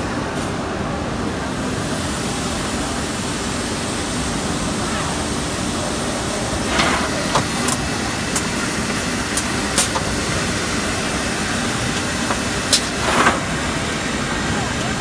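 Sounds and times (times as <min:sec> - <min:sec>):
drilling machine hissing: 0:05.4 - 0:15.0.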